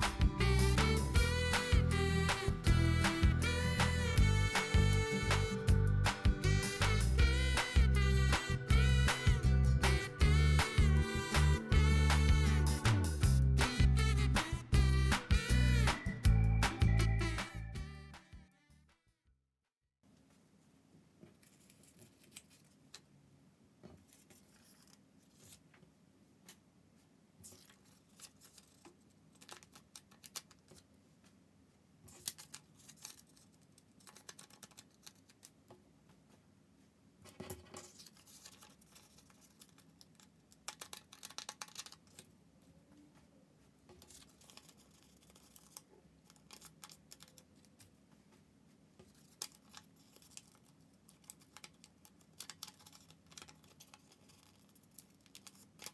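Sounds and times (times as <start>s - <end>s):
paper being folded and creased: 27.4s - 30.8s, 32.2s - 35.5s, 37.7s - 42.3s, 44.0s - 48.0s, 49.1s - 55.9s.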